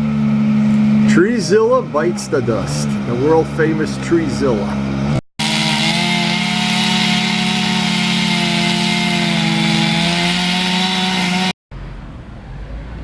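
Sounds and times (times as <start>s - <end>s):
chainsaw whining at high revs: 5.1s - 11.6s.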